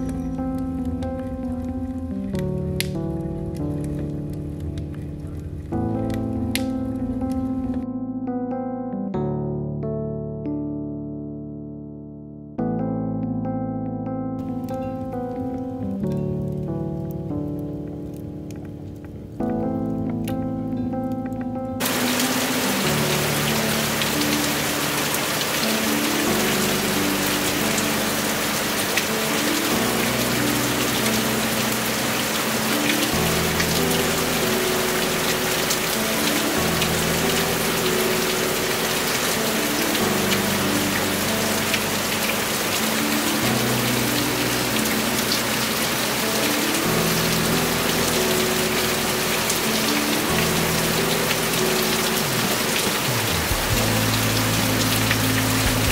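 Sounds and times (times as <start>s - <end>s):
soft background music: 0.0s - 55.9s
heavy rain falling: 14.4s - 55.9s.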